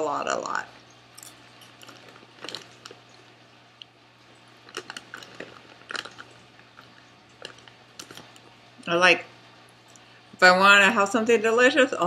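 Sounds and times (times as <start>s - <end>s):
chewing popcorn: 1.2s - 8.6s
snack bag crinkling: 1.2s - 8.6s.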